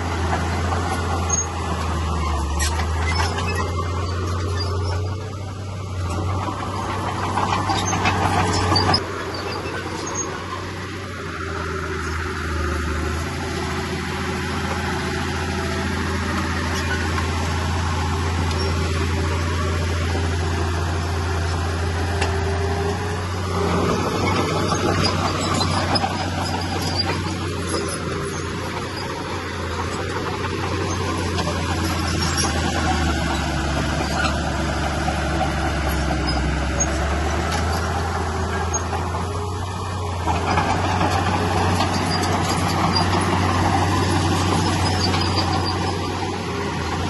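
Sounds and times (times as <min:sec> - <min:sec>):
bulldozer diesel engine droning: 0:00.0 - 0:47.0
machinery noise: 0:00.0 - 0:47.0.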